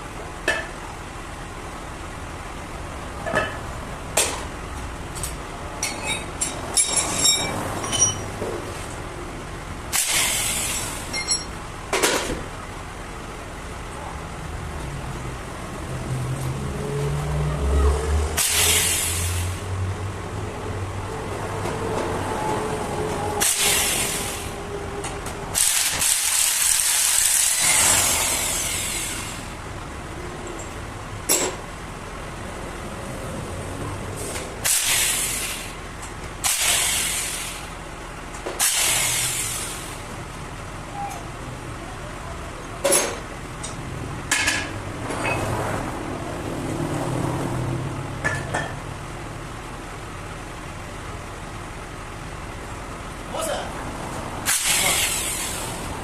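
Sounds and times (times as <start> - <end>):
compressed air hissing: 10.0 - 11.0, 18.4 - 19.7, 23.4 - 24.7, 34.2 - 35.8, 36.4 - 37.8, 38.6 - 40.0, 54.4 - 56.0.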